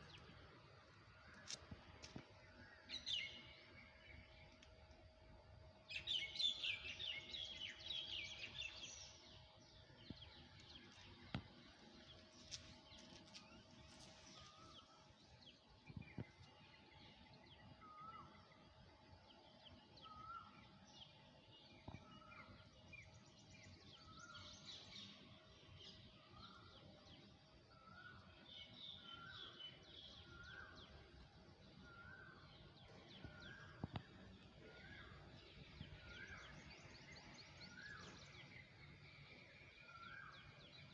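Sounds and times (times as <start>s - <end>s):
birds chirping: 25.9s - 40.9s.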